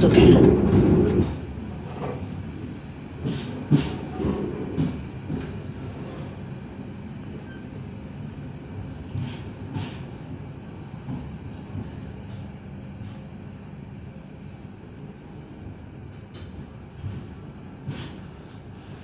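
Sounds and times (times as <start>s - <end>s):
train wheels rumbling: 0.0s - 6.6s.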